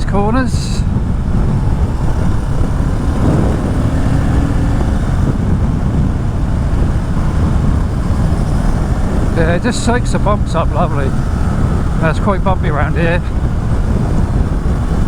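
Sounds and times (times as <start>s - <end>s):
wind noise on microphone: 0.0s - 15.0s
motorcycle engine: 0.8s - 15.0s.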